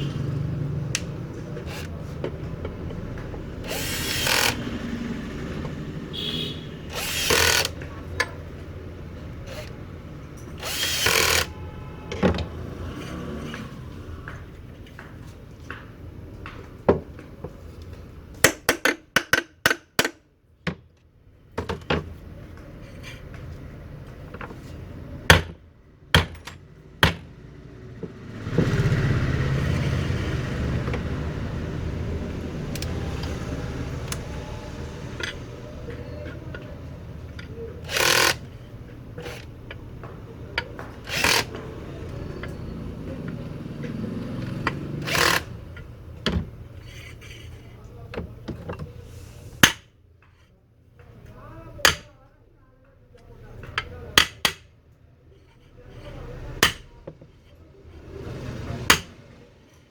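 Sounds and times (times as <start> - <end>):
fan motor whirring: 0.0 - 14.0, 28.6 - 46.7
sharp metallic knocks and clicks: 18.3 - 20.8, 25.3 - 27.3, 58.9 - 59.2.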